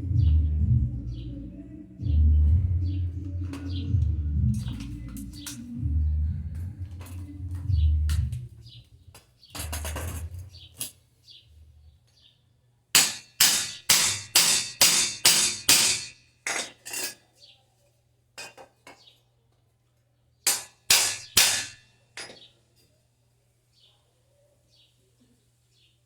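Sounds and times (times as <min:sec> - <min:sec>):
hammer striking metal: 0:13.0 - 0:16.6, 0:20.5 - 0:22.4.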